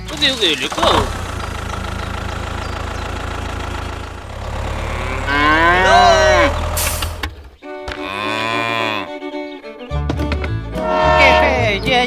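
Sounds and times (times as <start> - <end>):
small engine idling: 0.0 - 7.7
cow mooing: 4.3 - 6.7, 8.0 - 9.2, 10.8 - 11.7.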